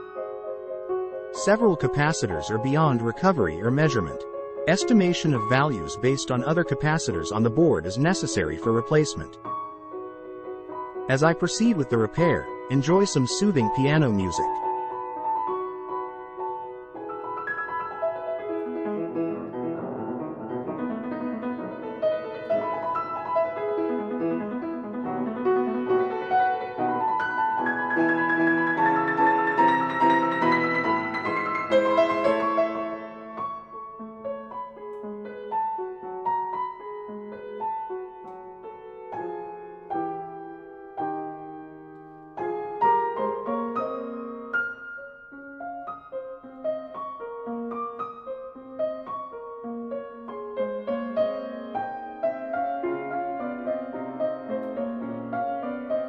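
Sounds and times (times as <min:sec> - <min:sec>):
soft solo piano music: 0:00.0 - 0:56.0.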